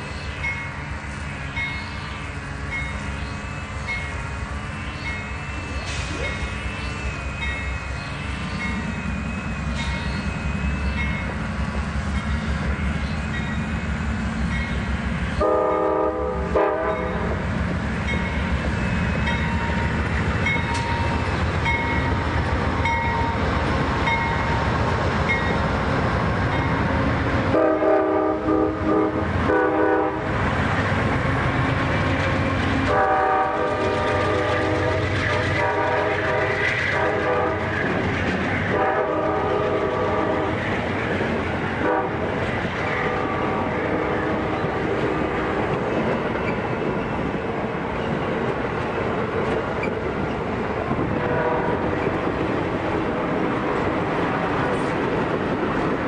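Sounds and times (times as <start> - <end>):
train wheels rumbling on rail: 0.0 - 56.0
locomotive horn blasts: 15.4 - 17.4, 27.5 - 30.3, 32.9 - 37.7, 38.7 - 40.6, 41.8 - 42.3, 51.2 - 51.9.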